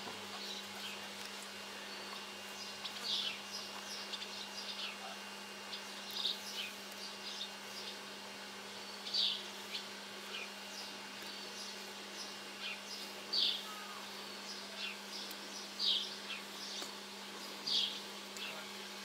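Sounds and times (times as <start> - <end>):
steady low hum: 0.0 - 19.0
small bird chirping: 5.7 - 8.0, 8.8 - 17.0, 17.6 - 18.6.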